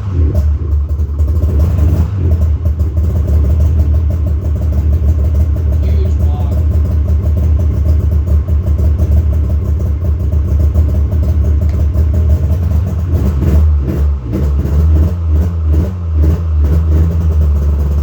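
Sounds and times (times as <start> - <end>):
snowmobile engine revving: 0.0 - 4.0.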